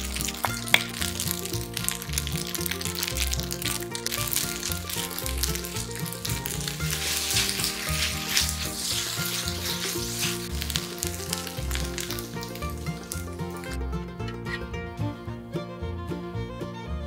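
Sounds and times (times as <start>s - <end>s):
food sizzling in a frying pan: 0.0s - 13.4s
background music: 0.0s - 17.0s.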